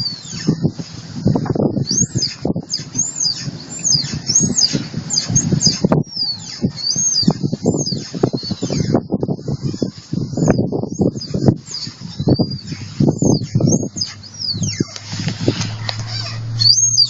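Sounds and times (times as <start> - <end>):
driveshaft squeaking: 9.7 - 17.0
low rumble of moving truck: 11.4 - 17.0.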